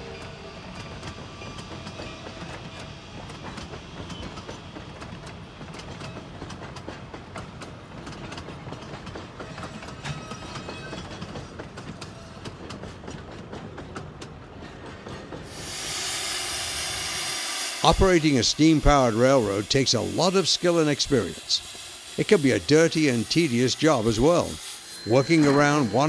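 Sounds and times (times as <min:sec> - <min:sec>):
train coaches rumbling: 0:00.0 - 0:26.0.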